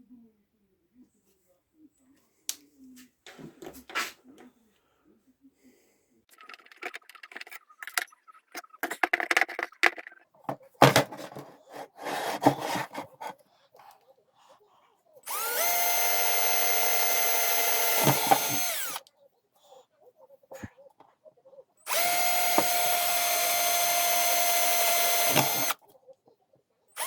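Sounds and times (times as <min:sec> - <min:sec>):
tools and parts handled: 0:06.3 - 0:13.4
electric drill running: 0:15.3 - 0:19.0, 0:21.9 - 0:25.8.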